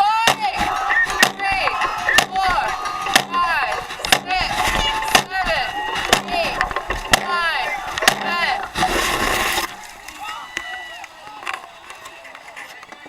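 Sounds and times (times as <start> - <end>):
crowd shouting and cheering: 0.0 - 13.0
drum beating steadily: 0.3 - 10.2.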